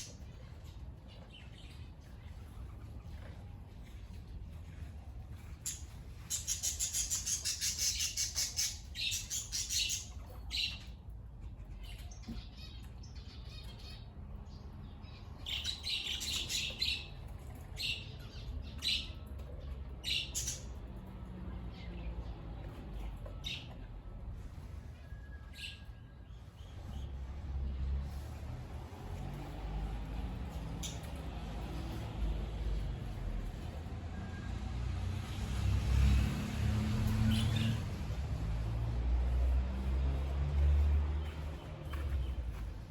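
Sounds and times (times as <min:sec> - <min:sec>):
birds chirping and squawking: 0:05.5 - 0:14.1, 0:15.0 - 0:20.8, 0:30.5 - 0:32.1, 0:37.2 - 0:37.8.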